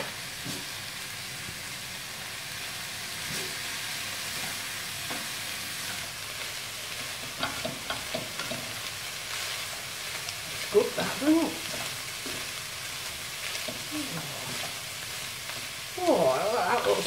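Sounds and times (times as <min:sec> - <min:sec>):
mince sizzling in frying pan: 0:00.0 - 0:17.0.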